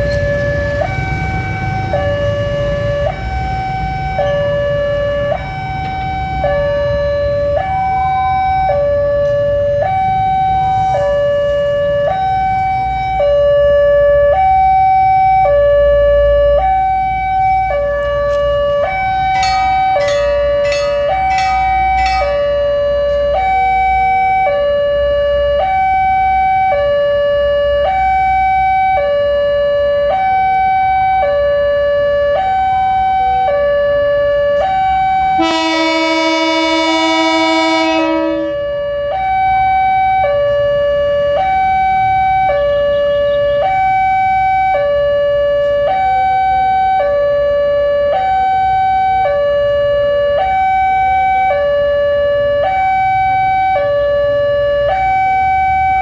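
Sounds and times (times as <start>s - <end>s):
level-crossing alarm high and low tones: 0.0s - 26.4s
locomotive horn: 15.2s - 27.0s, 27.6s - 40.6s.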